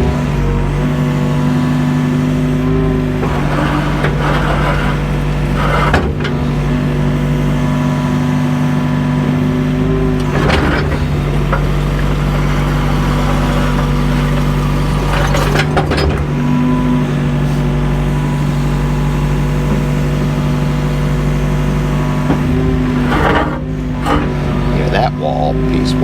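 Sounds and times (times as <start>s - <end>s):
diesel excavator engine running: 0.0s - 26.0s
bucket scraping concrete wall: 1.5s - 26.0s.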